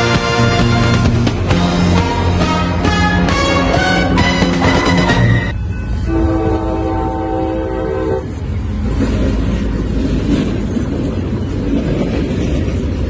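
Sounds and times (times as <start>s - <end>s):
locomotive horn blast: 0.0s - 8.4s
locomotives rumbling past: 0.0s - 13.0s.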